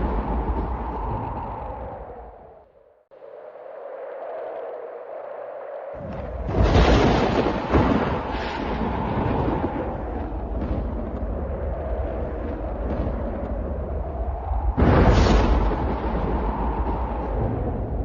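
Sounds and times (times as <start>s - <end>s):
rolling thunder rumble: 0.0s - 2.4s, 6.0s - 18.0s
storm wind rushing: 0.0s - 18.0s
thunder crack: 6.0s - 14.0s, 14.7s - 18.0s.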